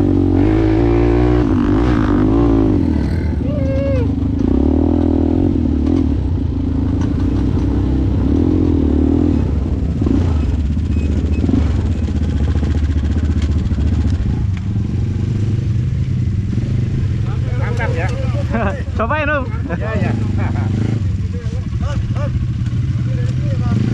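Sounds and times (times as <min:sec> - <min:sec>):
quad bike engine running: 0:00.0 - 0:23.9
clatter: 0:10.4 - 0:14.8.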